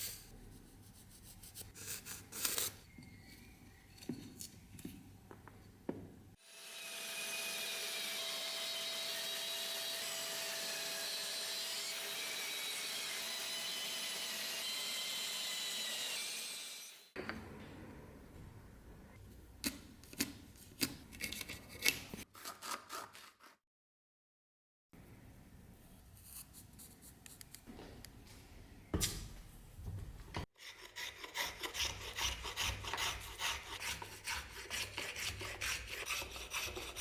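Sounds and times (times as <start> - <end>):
power tool whirring: 6.4 - 17.2.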